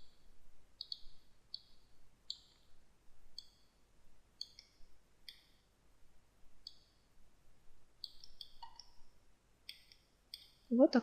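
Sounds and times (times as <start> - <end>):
computer mouse clicking: 0.8 - 2.7, 3.3 - 3.7, 4.4 - 5.6, 6.6 - 7.0, 8.0 - 9.0, 9.6 - 10.7.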